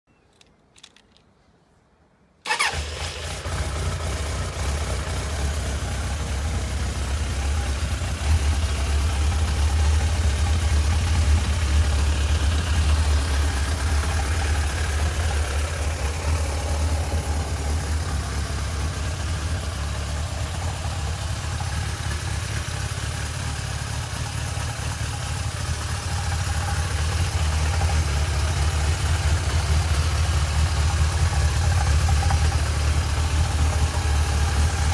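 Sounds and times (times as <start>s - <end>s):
faint clicks: 0.2s - 1.4s
motorcycle engine starting and idling: 2.4s - 34.9s.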